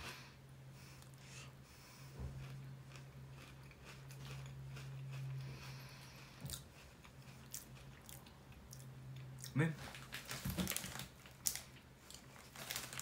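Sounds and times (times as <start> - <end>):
steady low hum: 0.0 - 10.2
chewing crunchy chips: 2.0 - 13.0.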